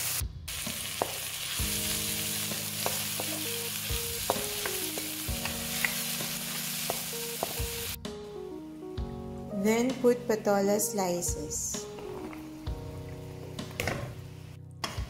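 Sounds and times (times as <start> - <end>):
shrimp and vegetables sizzling in wok: 0.0 - 8.0.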